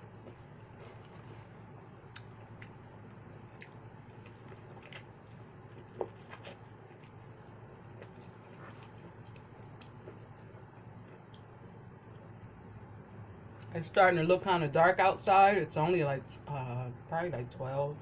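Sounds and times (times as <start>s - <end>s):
quiet chewing: 0.0s - 12.5s
wet mouth clicks: 2.1s - 2.8s.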